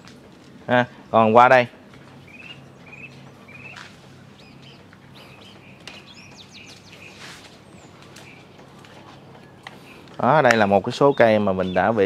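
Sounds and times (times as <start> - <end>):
small birds chirping: 0.7 - 12.0.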